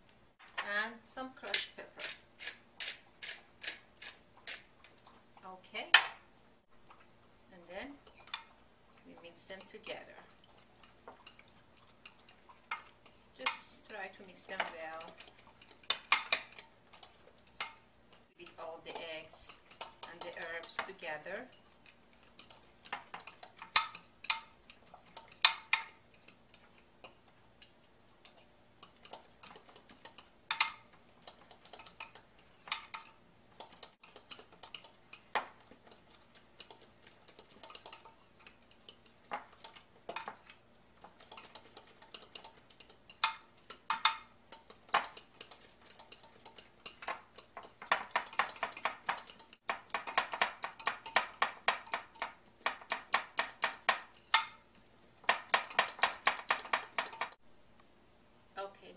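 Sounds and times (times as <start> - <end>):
metal utensil clinking against bowl: 28.3 - 54.6, 55.2 - 57.4.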